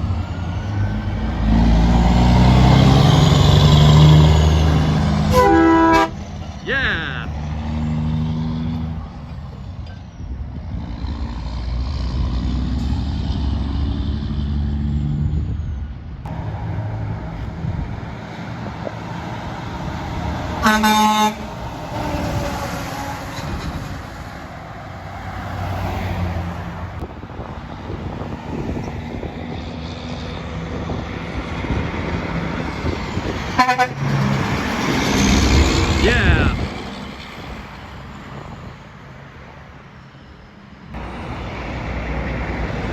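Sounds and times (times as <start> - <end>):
trucks passing: 0.0 - 42.9
truck air horn blast: 5.3 - 6.2, 20.6 - 21.5, 33.5 - 34.2.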